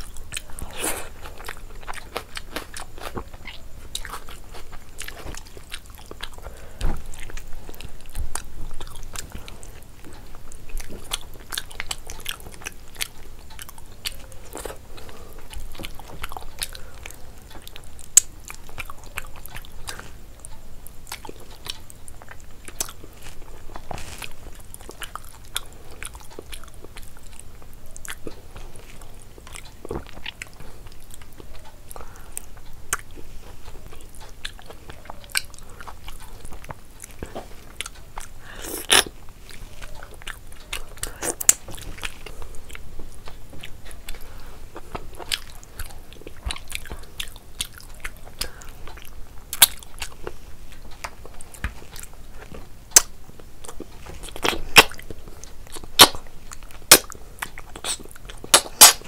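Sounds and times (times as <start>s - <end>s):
person chewing and crunching: 0.0s - 59.0s
wet mouth smacks and clicks: 55.7s - 59.0s.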